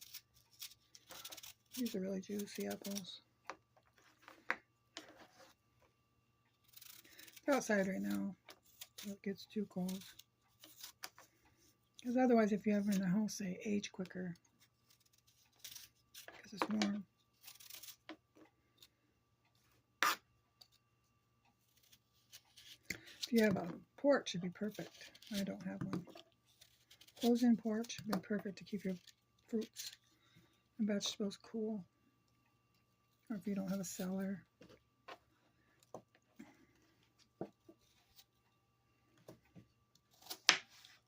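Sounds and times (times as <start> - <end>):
knife cutting apple: 6.6 - 11.2, 14.6 - 18.2, 20.0 - 20.8.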